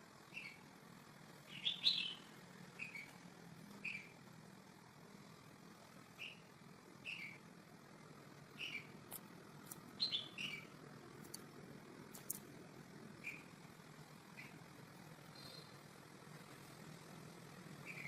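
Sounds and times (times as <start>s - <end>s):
low steady hum: 0.0s - 18.0s
bird chirping: 0.3s - 0.6s, 1.5s - 3.2s, 3.8s - 4.1s, 6.2s - 7.4s, 8.6s - 9.0s, 10.0s - 10.8s, 13.2s - 13.5s, 15.3s - 15.8s.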